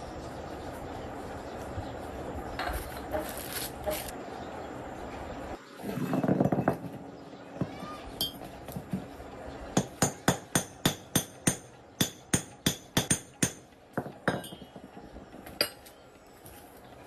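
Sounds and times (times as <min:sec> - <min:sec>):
hammer striking metal: 0:08.2 - 0:08.5, 0:09.8 - 0:15.0.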